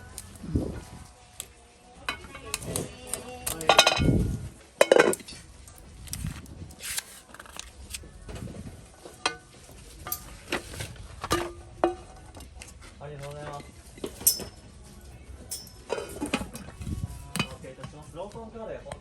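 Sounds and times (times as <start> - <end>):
hard objects clinking and clattering: 9.1 - 12.7, 14.0 - 14.7, 15.5 - 17.6.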